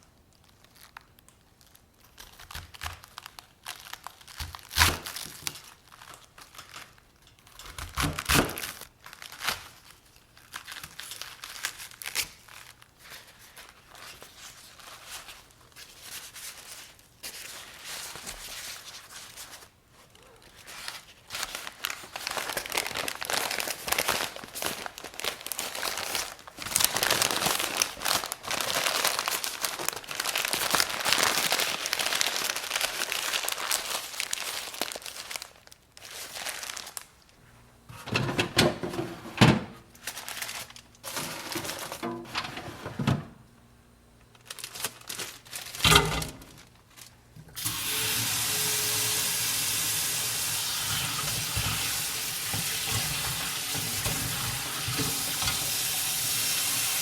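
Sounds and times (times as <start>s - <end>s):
wrapping material crinkling: 0.0s - 37.5s, 39.8s - 42.1s, 44.2s - 49.8s.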